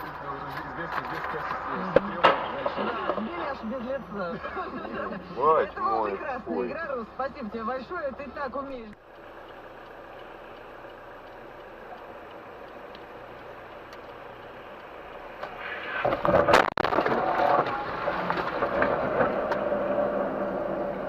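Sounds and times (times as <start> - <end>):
vehicle road noise: 0.0 - 21.0
clattering noise: 0.4 - 3.4, 15.4 - 19.7.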